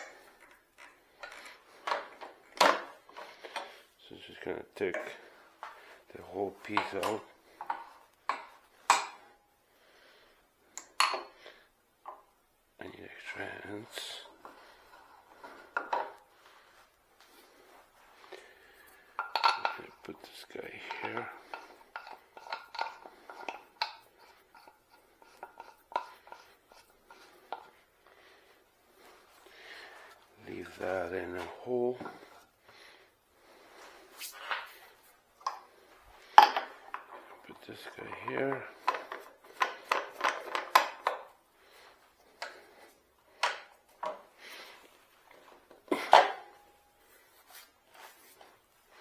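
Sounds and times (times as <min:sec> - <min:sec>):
tools clicking and knocking: 0:00.0 - 0:03.8, 0:06.6 - 0:09.3, 0:10.8 - 0:11.4, 0:14.4 - 0:16.2, 0:19.2 - 0:27.8, 0:35.4 - 0:41.4, 0:42.3 - 0:44.3, 0:45.3 - 0:46.6.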